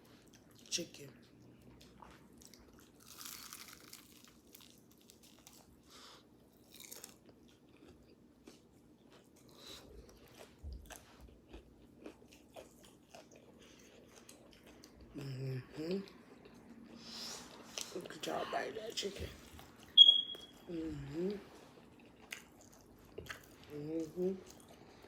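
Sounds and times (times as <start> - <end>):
crunching fried chicken: 2.3 - 15.0
chewing smacks: 6.6 - 15.1, 21.8 - 25.0.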